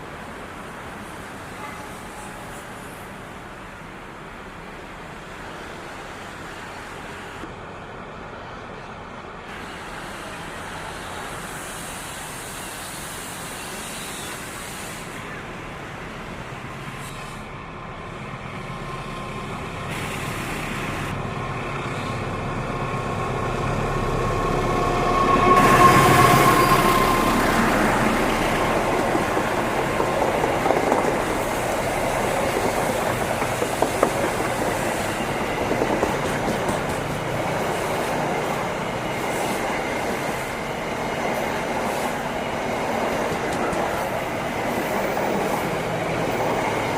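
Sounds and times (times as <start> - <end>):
train engine and wheel noise: 0.0 - 46.9
carriages rolling on rails: 18.2 - 46.9
locomotive horn: 24.9 - 27.7.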